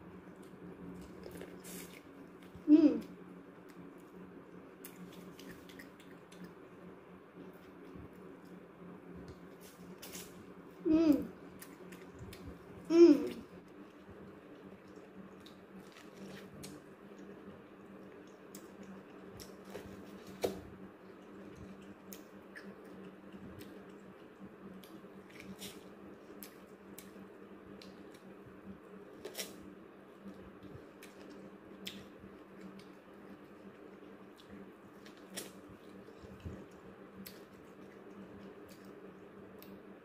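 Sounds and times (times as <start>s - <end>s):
steady low hum: 0.0s - 40.0s
chewing with wet mouth clicks: 4.8s - 6.7s, 11.5s - 12.8s, 13.6s - 28.3s, 30.2s - 39.9s.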